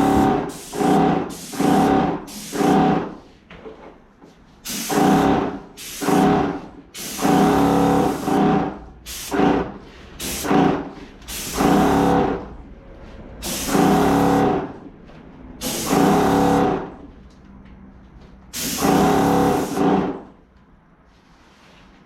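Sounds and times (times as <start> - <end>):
paint sprayer pump buzzing: 18.6 - 20.0.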